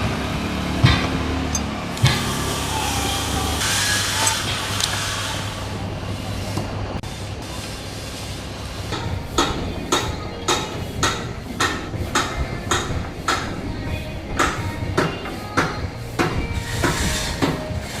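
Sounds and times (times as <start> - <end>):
steady low hum: 0.0 - 18.0
hammer blows on metal: 8.9 - 18.0.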